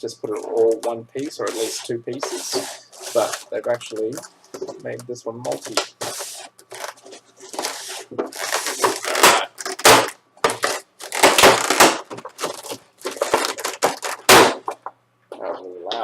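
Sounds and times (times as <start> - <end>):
plastic packaging crinkling: 0.5 - 14.8.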